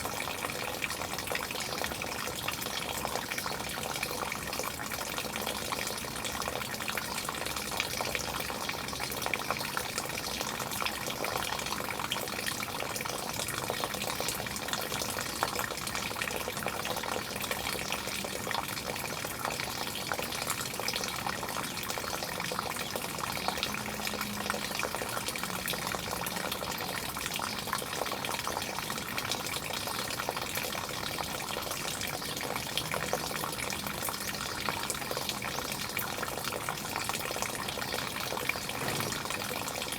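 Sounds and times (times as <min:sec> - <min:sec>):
water running and splashing: 0:31.8 - 0:39.9.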